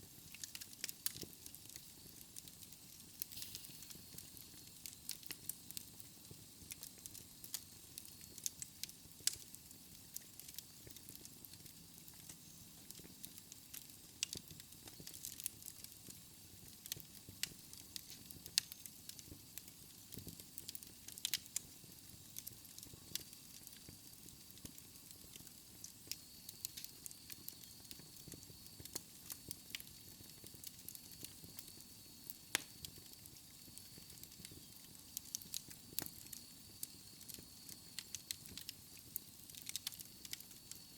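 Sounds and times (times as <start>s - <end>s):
fire crackling and popping: 0.0s - 40.9s
flames hissing and rumbling: 0.0s - 40.9s.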